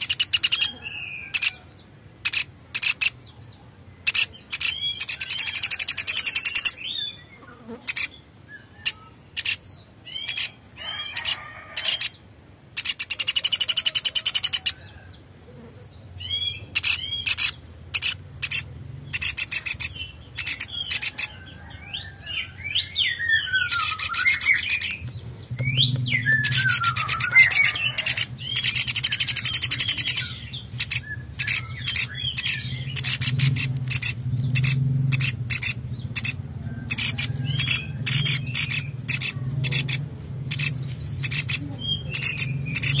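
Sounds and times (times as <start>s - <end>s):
swooping bird calls: 0.0s - 3.3s, 4.0s - 43.0s
birds trilling and chirping: 0.0s - 43.0s.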